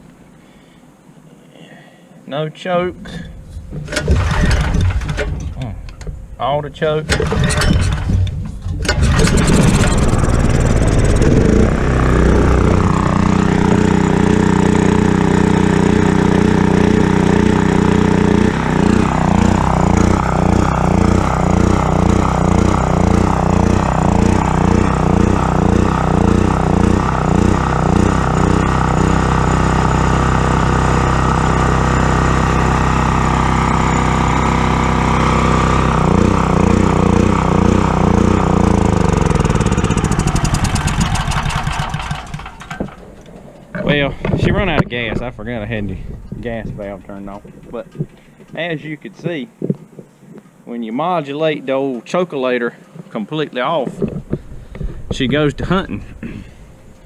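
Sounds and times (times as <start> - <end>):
generator engine surging: 3.2 - 48.3.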